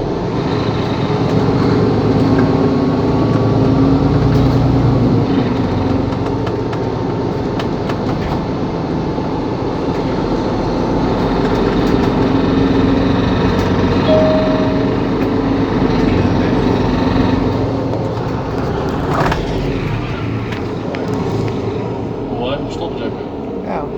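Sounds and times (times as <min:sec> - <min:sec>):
bus engine humming: 0:00.0 - 0:23.9
short beep: 0:14.1 - 0:15.3.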